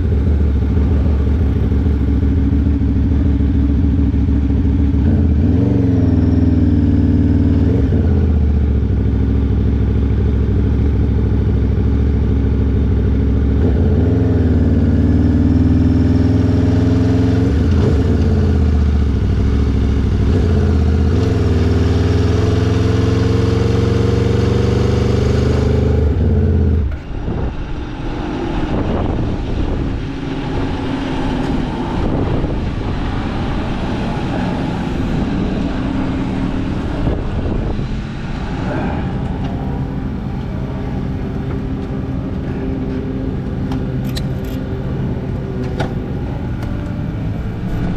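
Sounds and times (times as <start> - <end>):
motorcycle engine under load: 0.0 - 47.9
wind rush: 26.8 - 41.8, 45.9 - 47.9.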